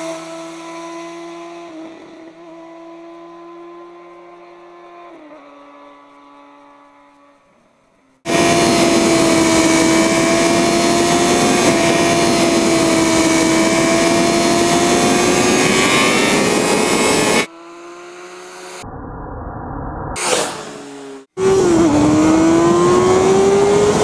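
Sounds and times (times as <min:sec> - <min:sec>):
motorcycle engine at high revs: 0:00.0 - 0:18.9, 0:20.2 - 0:24.0
wind rush: 0:08.3 - 0:17.5.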